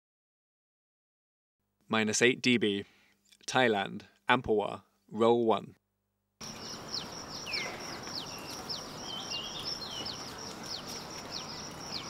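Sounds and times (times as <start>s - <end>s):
outdoor background hiss: 1.6s - 12.0s
small birds chirping: 6.4s - 12.0s.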